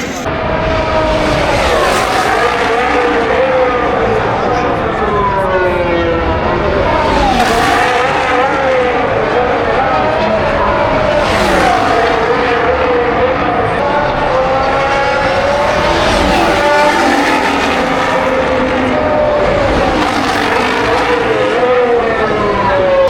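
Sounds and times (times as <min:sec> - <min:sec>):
racing car engines revving: 0:00.0 - 0:23.0.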